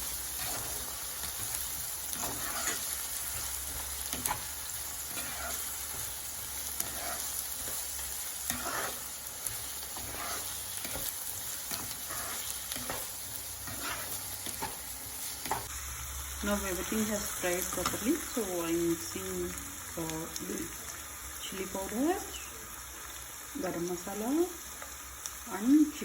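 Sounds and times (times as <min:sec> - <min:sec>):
onions sizzling in hot oil: 0:00.0 - 0:26.0
utensil scraping a pan: 0:02.1 - 0:06.1, 0:06.7 - 0:15.7.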